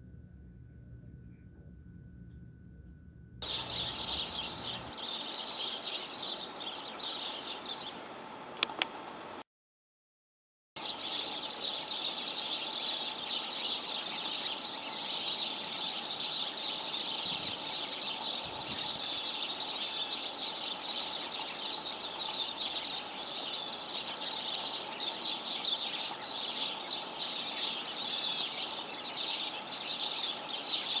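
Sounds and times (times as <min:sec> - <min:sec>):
flock of birds chirping: 0:03.4 - 0:08.0, 0:10.8 - 0:31.0.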